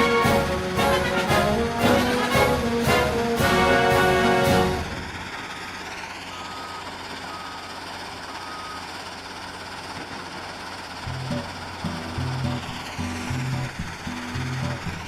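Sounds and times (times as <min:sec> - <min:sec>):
music: 0:00.0 - 0:04.9, 0:11.1 - 0:15.0
construction vehicle engine running: 0:00.0 - 0:15.0
reversing alarm beeps: 0:06.3 - 0:08.9.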